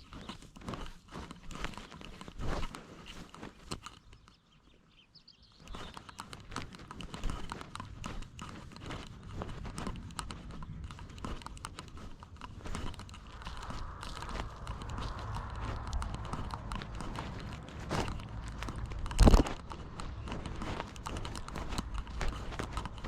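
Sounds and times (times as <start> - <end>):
clicks knocks and rubbing: 5.7 - 23.0.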